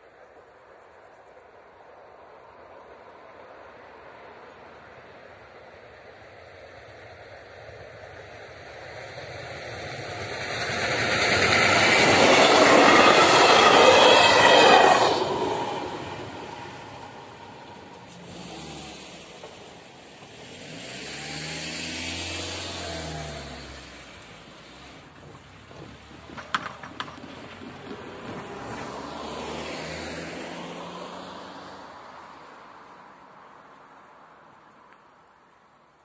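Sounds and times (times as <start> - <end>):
train wheels on rails: 4.0 - 21.1, 22.6 - 29.9
car engines accelerating: 8.6 - 32.8.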